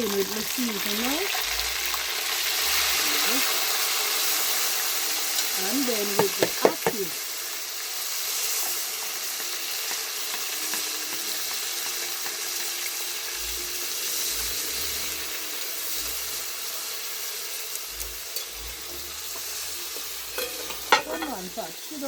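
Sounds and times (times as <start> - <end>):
chicken sizzling in oil: 0.0 - 22.0.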